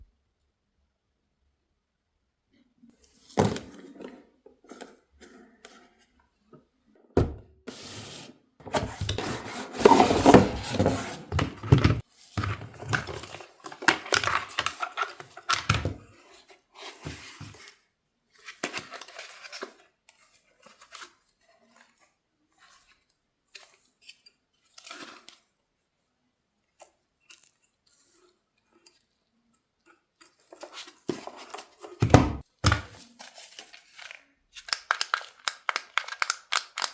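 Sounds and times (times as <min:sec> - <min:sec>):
cardboard and plastic rustling: 0:07.7 - 0:17.8.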